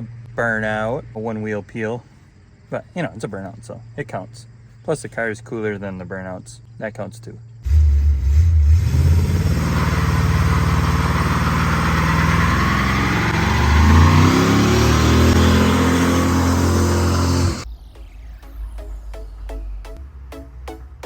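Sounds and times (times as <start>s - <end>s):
car engine revving hard: 7.7s - 17.6s
tyre spinning and squealing: 9.2s - 17.6s.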